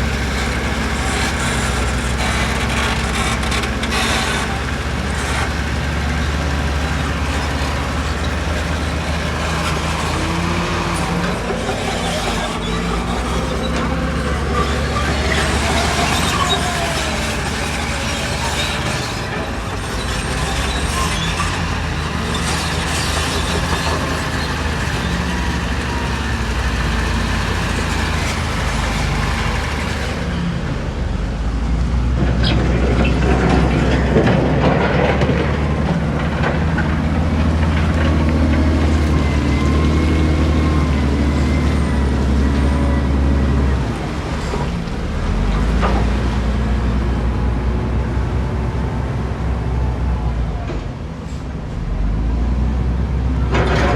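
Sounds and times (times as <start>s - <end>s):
diesel construction machinery running: 0.0s - 53.9s.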